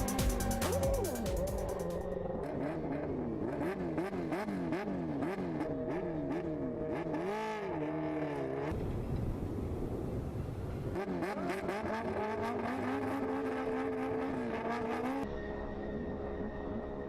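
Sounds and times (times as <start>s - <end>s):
engine revving: 0.0s - 8.8s, 10.9s - 15.3s.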